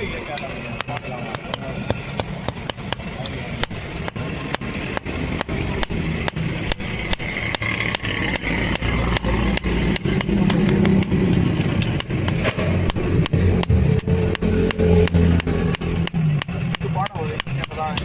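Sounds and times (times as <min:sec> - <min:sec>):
hammer striking iron on anvil: 0:00.4 - 0:18.0
steady low rumble: 0:03.5 - 0:16.7.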